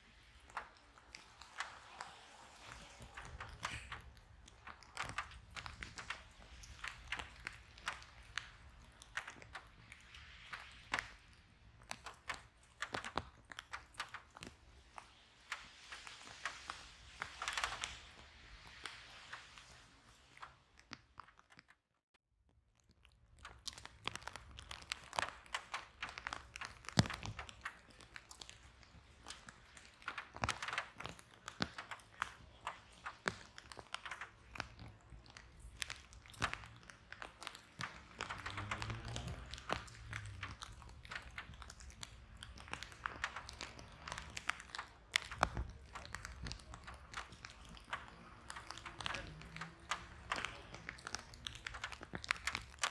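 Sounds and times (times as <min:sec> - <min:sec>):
wood fire crackling and popping: 0:00.0 - 0:21.9, 0:22.8 - 0:52.9
sharp pops of fire: 0:00.1 - 0:21.1.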